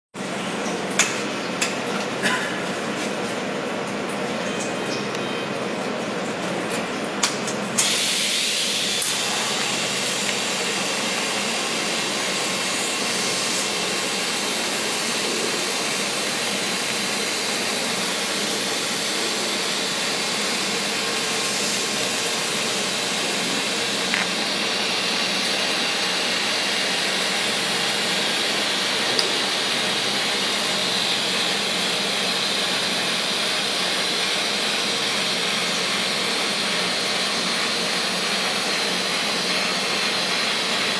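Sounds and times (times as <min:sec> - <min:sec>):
welding arc hiss: 0:07.8 - 0:35.9.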